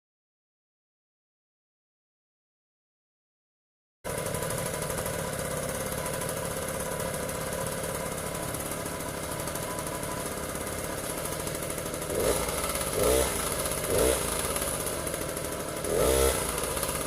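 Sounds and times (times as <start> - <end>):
small engine idling: 4.1 - 17.0.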